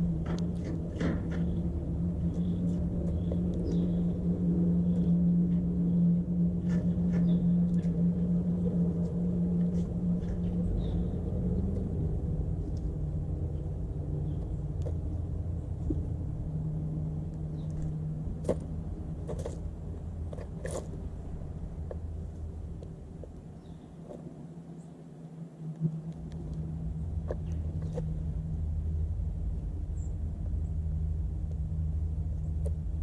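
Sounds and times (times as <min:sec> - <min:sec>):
low motor hum: 0:00.0 - 0:33.0
bird chirps: 0:01.4 - 0:05.2, 0:05.8 - 0:07.9.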